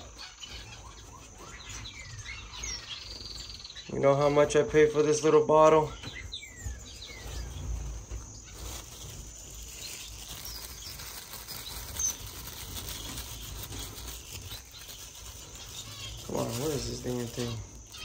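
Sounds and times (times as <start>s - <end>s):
finches chirping: 0.0s - 18.0s
faint handling rustle: 6.3s - 18.0s
small wings fluttering: 6.9s - 18.0s.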